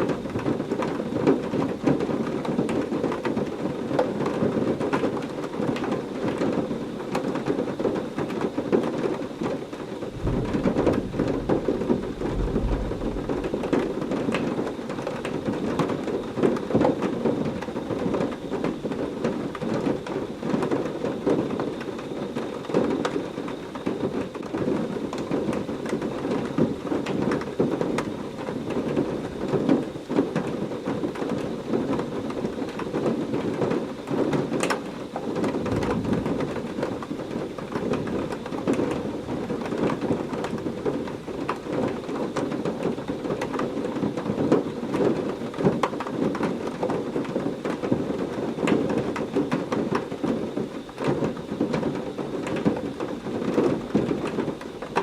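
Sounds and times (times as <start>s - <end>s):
heavy rain pouring: 10.0s - 16.6s
low thunder rumble: 10.1s - 15.8s.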